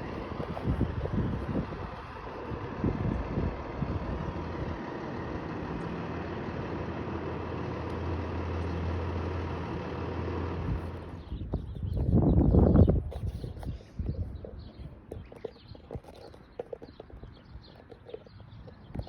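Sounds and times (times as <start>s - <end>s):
large engine idling: 0.0s - 12.8s.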